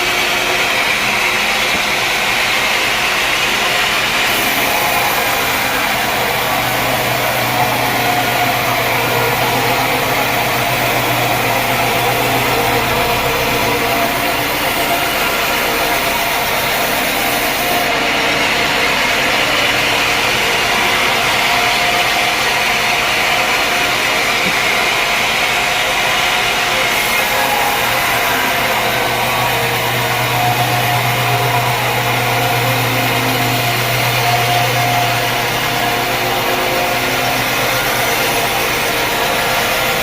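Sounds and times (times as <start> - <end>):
sawmill machinery running: 0.0 - 40.0
low hum: 26.3 - 40.0.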